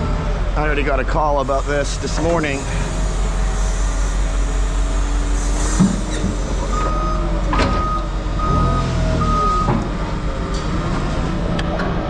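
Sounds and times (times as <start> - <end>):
engine running: 0.0 - 12.0
vehicle backup alarm beeping: 6.0 - 9.9.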